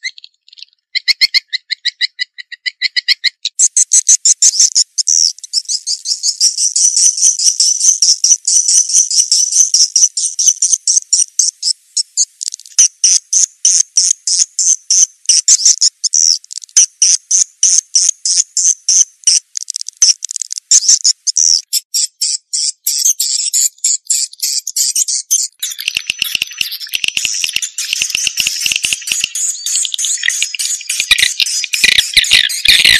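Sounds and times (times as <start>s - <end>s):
swiftlets twittering chirps: 12.2s - 32.9s.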